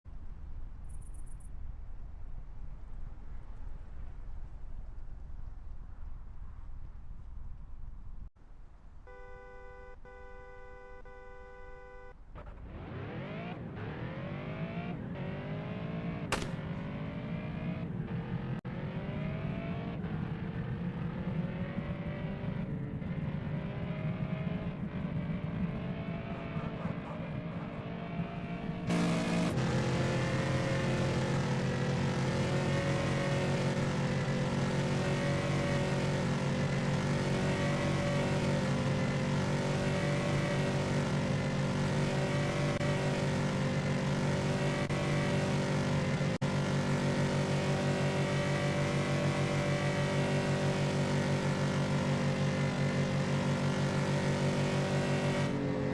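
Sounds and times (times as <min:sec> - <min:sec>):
pickup truck engine accelerating: 0:12.4 - 0:55.9.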